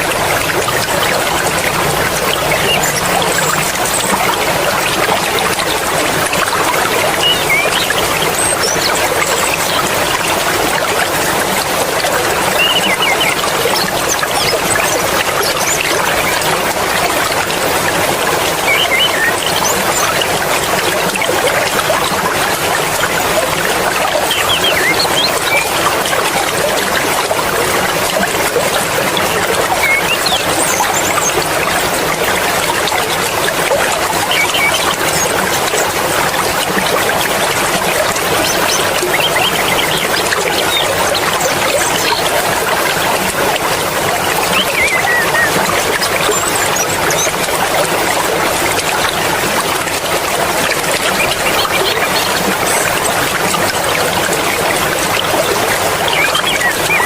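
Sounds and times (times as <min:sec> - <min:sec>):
stream water rushing: 0:00.0 - 0:57.0
high bird chirps: 0:02.3 - 0:04.1, 0:07.2 - 0:09.8, 0:12.5 - 0:15.8, 0:18.6 - 0:20.2, 0:24.2 - 0:25.8, 0:29.8 - 0:31.4, 0:34.2 - 0:35.4, 0:38.3 - 0:42.3, 0:44.3 - 0:45.6, 0:56.0 - 0:57.0.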